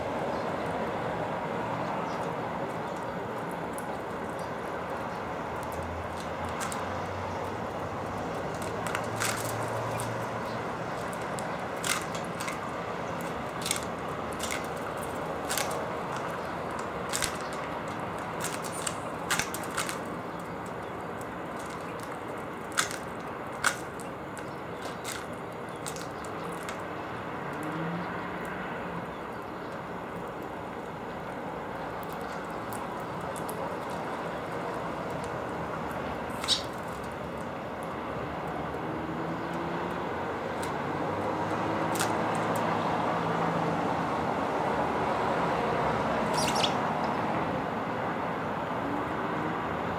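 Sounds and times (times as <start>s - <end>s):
distant traffic hum: 0.0s - 49.9s
birds cracking seeds: 0.1s - 47.6s
high bird call: 46.3s - 47.2s.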